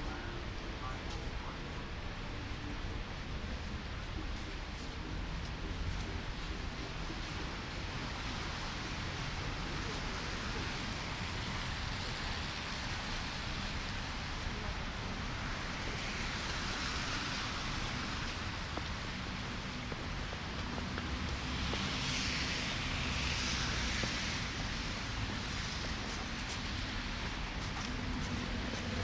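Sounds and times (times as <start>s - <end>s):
car tyres on slushy road: 7.1s - 29.0s.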